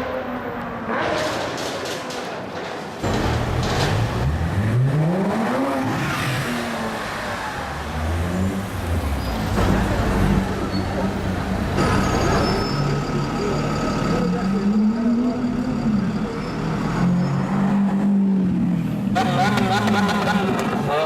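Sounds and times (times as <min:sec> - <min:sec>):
car engine revving: 0:03.0 - 0:10.5.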